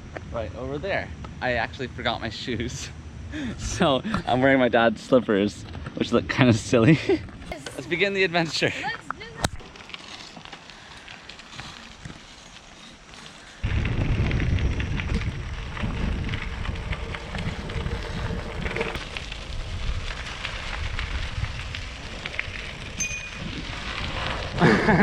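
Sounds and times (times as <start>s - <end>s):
crackling tyre noise: 0.0s - 25.0s
wind buffeting microphone: 13.6s - 25.0s.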